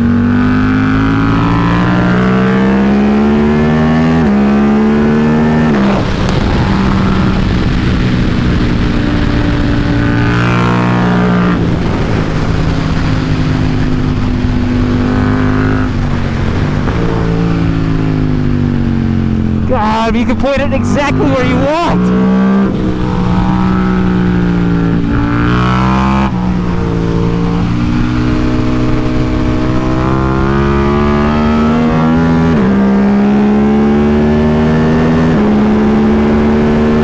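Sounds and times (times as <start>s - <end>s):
motorbike engine accelerating: 0.0s - 37.0s.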